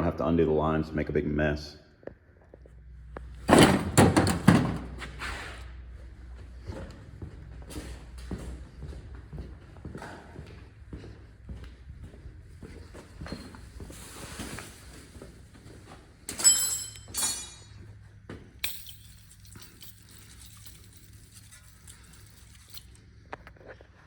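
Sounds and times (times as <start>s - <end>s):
sharp metallic clanks: 16.3s - 17.8s
aerosol can hissing: 18.9s - 23.0s.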